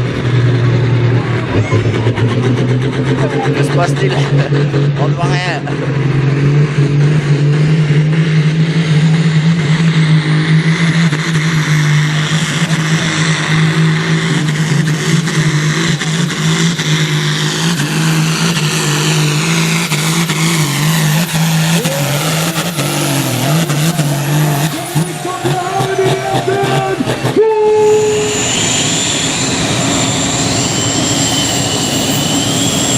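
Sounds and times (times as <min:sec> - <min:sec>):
tractor engine running at high revs: 0:00.0 - 0:32.9.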